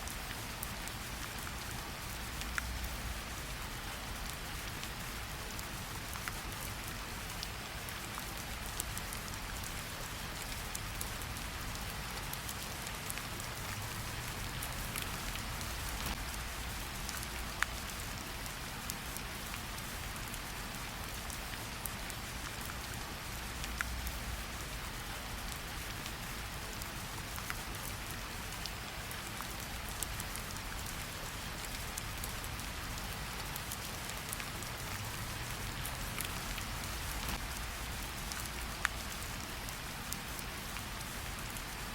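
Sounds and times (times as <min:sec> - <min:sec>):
steady rain hiss: 0:00.0 - 0:41.9
close raindrop ticks: 0:00.1 - 0:41.9.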